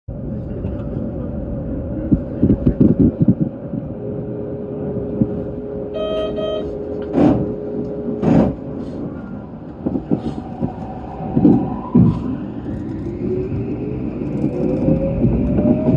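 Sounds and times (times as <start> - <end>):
train low rumble: 0.1 - 15.9
short electronic beep: 6.0 - 6.7.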